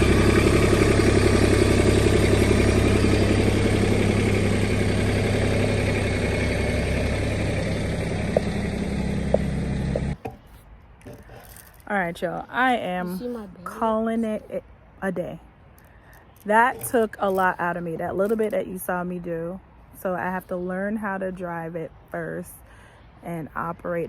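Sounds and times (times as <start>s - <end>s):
tractor diesel engine running: 0.0s - 10.4s, 16.4s - 18.6s.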